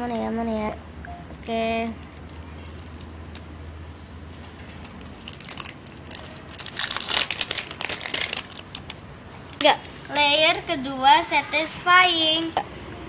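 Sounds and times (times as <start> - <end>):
wrapping crinkling and tearing: 1.4 - 3.5, 4.8 - 9.0.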